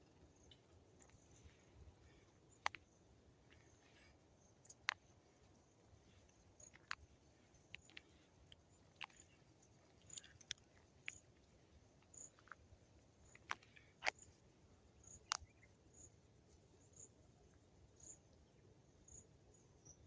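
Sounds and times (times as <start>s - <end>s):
sharp clicks: 2.6s - 2.9s.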